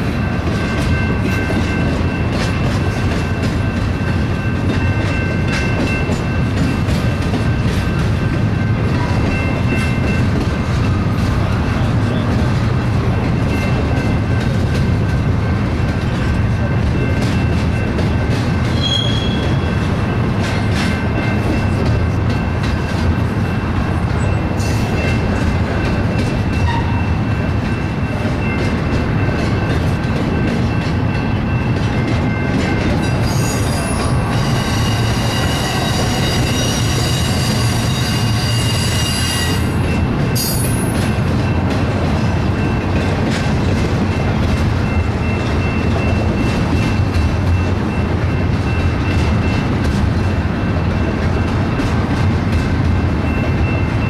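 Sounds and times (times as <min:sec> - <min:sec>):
train wheels rumbling on rail: 0:00.0 - 0:54.0
wheels squealing: 0:18.7 - 0:19.9, 0:33.0 - 0:41.0.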